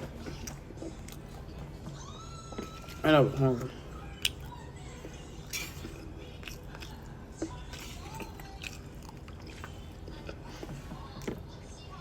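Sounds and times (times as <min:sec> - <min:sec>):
person chewing: 0:00.0 - 0:01.9, 0:02.5 - 0:11.4.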